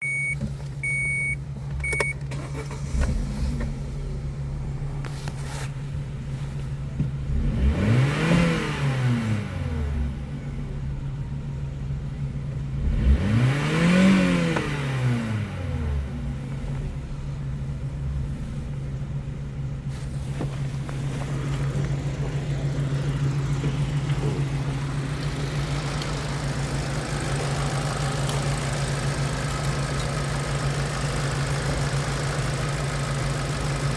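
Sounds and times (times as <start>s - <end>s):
short beeps: 0.0s - 2.2s
car engine idling and revving: 0.0s - 33.9s.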